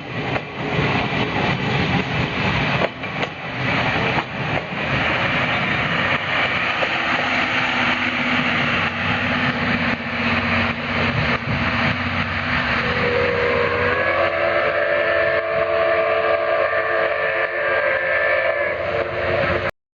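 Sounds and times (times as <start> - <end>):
steam train rumbling past: 0.0 - 19.7
multi-toned steam whistle: 11.8 - 19.7.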